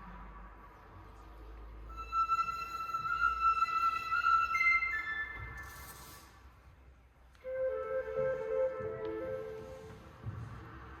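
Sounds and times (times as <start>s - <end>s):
flute ensemble playing: 1.9s - 6.0s, 7.4s - 10.0s.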